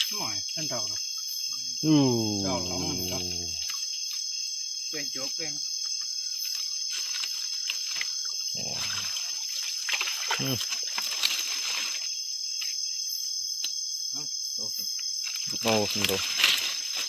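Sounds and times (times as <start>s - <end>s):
crickets and insects chirping: 0.0s - 17.0s
low grunting: 1.8s - 3.7s
water splashing: 7.9s - 11.8s.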